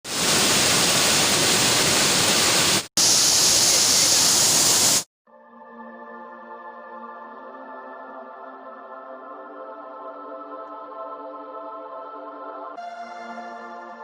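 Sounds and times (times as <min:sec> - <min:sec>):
waterfall roaring: 0:00.1 - 0:05.0
soft ambient music: 0:05.3 - 0:14.0.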